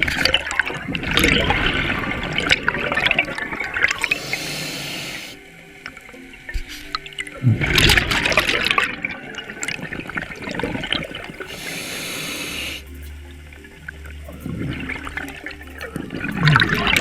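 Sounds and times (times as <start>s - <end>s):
exhaled bubbles underwater: 0.0s - 17.0s
regulator inhaling hiss: 1.5s - 5.9s, 11.1s - 13.6s.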